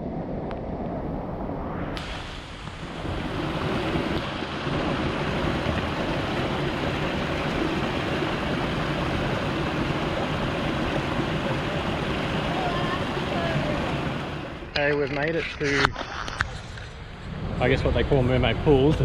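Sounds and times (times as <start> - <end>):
floodwater rushing in creek: 2.0 - 17.0.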